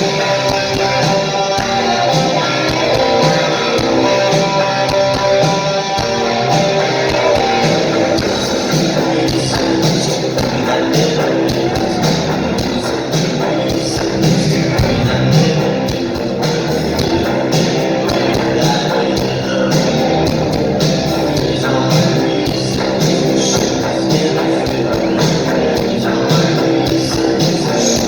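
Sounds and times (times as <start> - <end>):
electric guitars: 0.0 - 28.0
drum and cymbal beat: 7.4 - 28.0.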